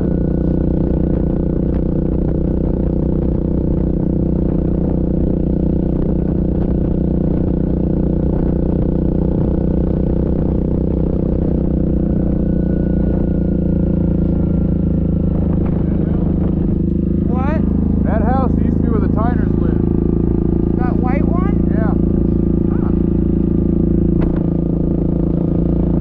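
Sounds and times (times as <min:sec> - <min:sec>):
atv engine running: 0:00.0 - 0:26.0.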